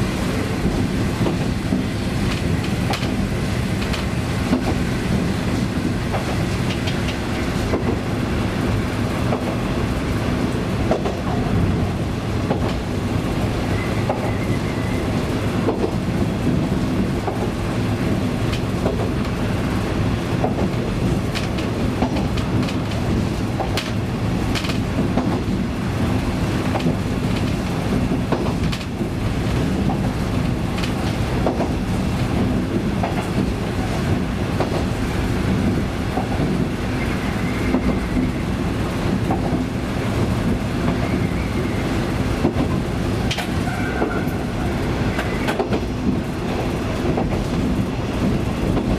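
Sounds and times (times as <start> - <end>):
wheels clicking over rail joints: 0.4 - 8.1, 10.8 - 13.1, 15.6 - 36.9, 37.5 - 41.5, 42.1 - 48.9.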